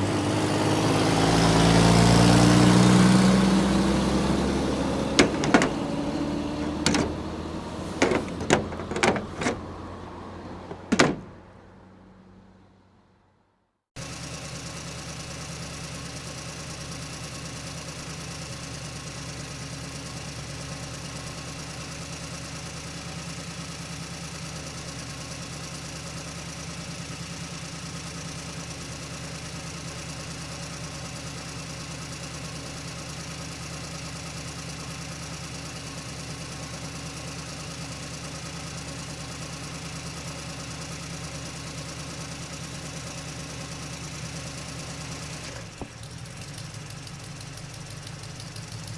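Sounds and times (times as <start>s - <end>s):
engine idling drone: 3.2s - 9.9s.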